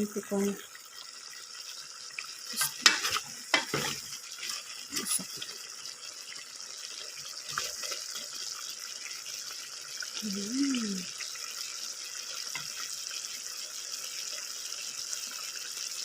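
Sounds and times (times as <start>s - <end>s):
food sizzling in a pan: 0.0s - 16.0s
spoon scraping and knocking pan: 2.6s - 5.4s.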